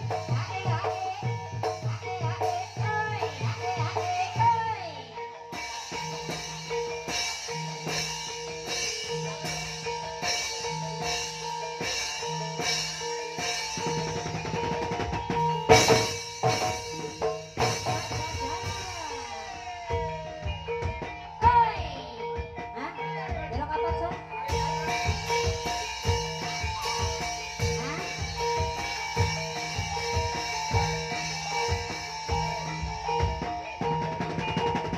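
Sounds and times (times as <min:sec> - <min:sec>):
steady drum beat: 0:00.0 - 0:34.9.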